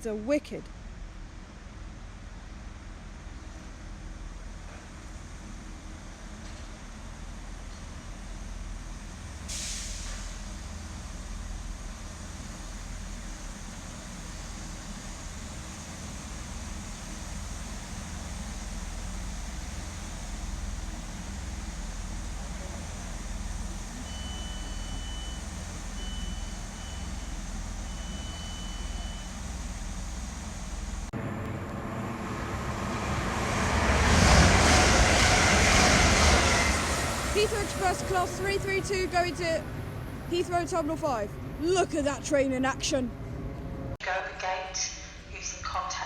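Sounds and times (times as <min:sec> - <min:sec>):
diesel train idling: 0:00.0 - 0:44.0
electric train rushing through: 0:08.6 - 0:43.9.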